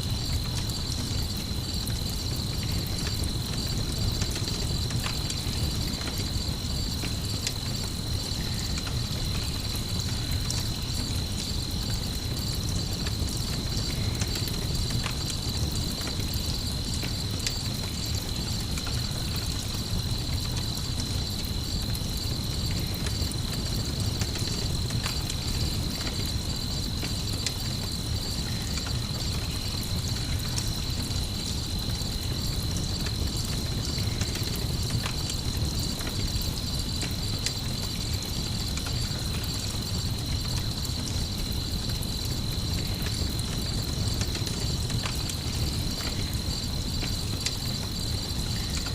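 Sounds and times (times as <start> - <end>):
campfire crackling: 0.0 - 48.9
crickets chirping: 0.0 - 48.9.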